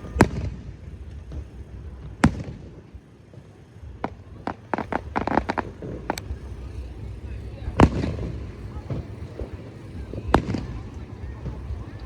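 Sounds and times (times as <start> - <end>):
fireworks bursting: 0.0 - 12.0
low rumble: 4.0 - 12.0.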